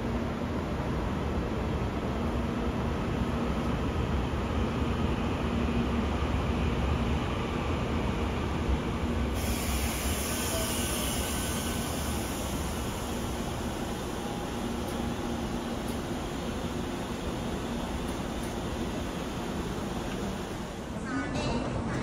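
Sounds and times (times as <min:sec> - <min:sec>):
train wheels rumbling: 0:09.2 - 0:20.9
loud high hiss: 0:09.3 - 0:14.5.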